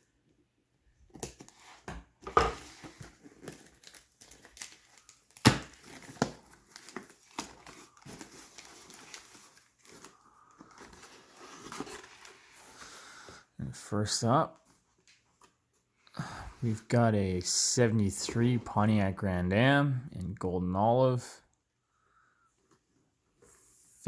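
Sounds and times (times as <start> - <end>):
packaging crinkling and tearing: 2.6 - 12.7
sharp packaging snaps: 3.4 - 9.3.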